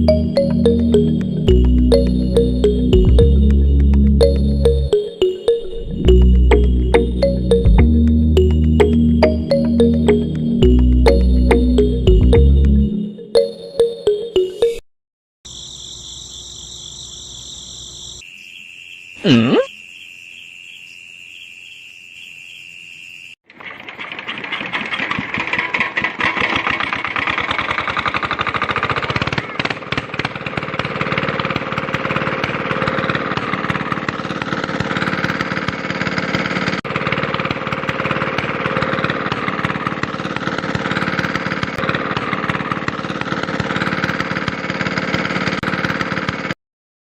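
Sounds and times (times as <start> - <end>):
small diesel engine running: 0.0 - 5.1, 6.1 - 13.0, 23.5 - 46.6.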